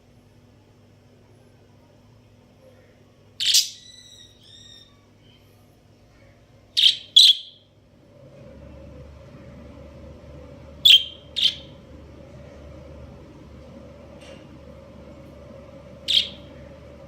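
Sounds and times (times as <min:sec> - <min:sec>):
budgerigars chirping: 0:06.8 - 0:07.5, 0:10.9 - 0:11.7, 0:16.1 - 0:16.5.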